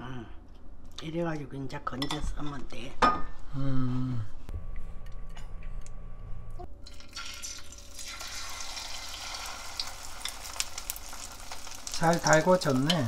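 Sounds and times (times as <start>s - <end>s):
low steady hum: 0.0s - 13.0s
food sizzling in hot oil: 6.9s - 13.0s.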